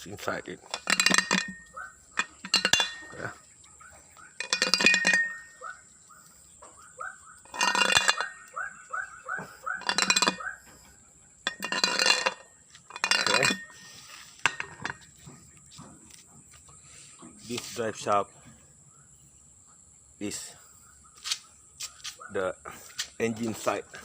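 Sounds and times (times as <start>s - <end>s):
metal part sliding and clinking: 0.7s - 3.4s, 4.4s - 5.6s, 7.4s - 8.6s, 9.6s - 10.8s, 11.5s - 15.0s.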